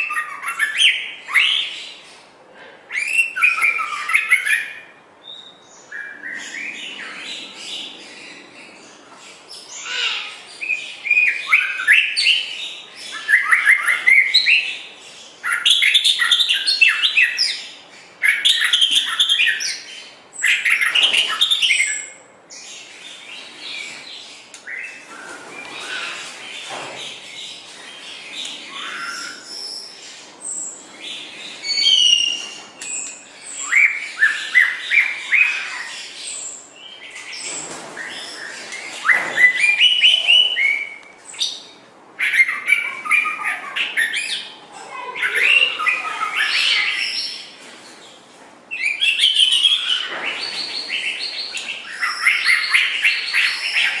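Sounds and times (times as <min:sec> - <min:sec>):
bird singing whistled phrases: 0:31.6 - 0:32.5.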